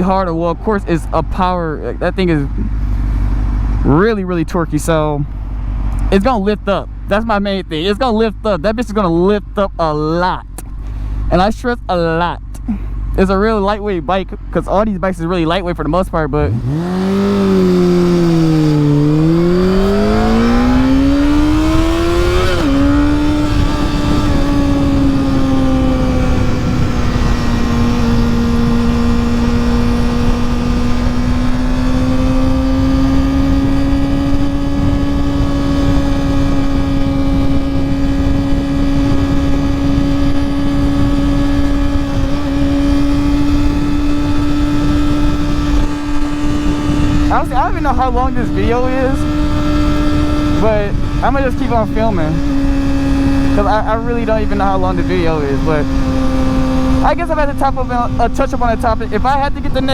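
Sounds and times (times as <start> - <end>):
motorcycle engine revving: 15.4 - 59.9.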